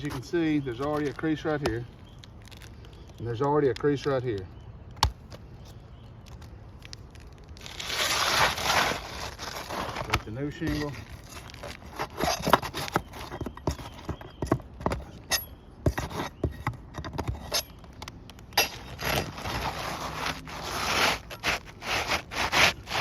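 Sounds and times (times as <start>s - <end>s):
gritty scraping of shingle: 0.0s - 23.0s
shingle taps and knocks: 12.0s - 19.4s.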